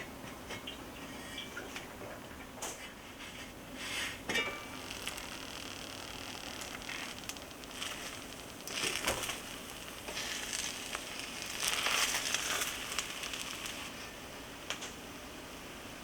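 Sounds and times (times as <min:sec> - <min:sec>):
crinkling and crunching: 0:04.4 - 0:14.1
small clicks: 0:04.7 - 0:13.9.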